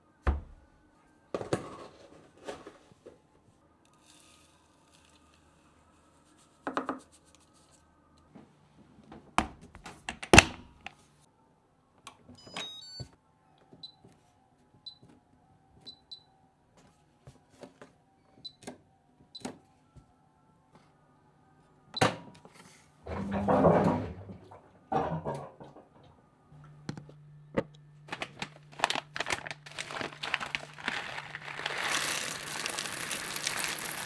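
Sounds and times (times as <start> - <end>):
short appliance beeps: 12.4 - 13.1
household knocks and clatter: 23.1 - 26.0.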